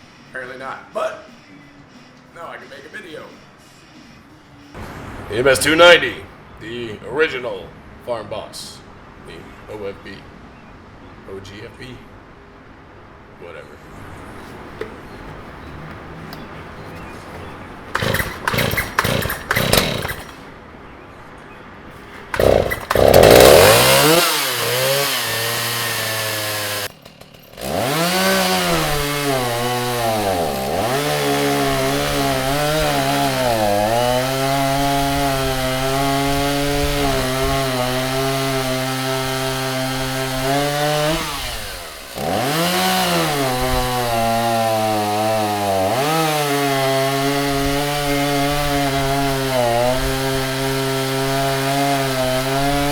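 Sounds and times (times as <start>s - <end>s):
chainsaw cutting wood: 17.9s - 20.5s, 22.1s - 52.9s.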